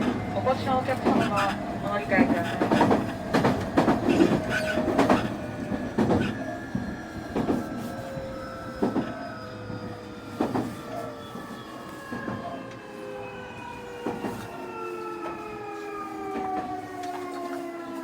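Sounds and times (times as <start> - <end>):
wheels clacking over rail joints: 0.0 - 7.8
train inverter whining: 0.0 - 18.0.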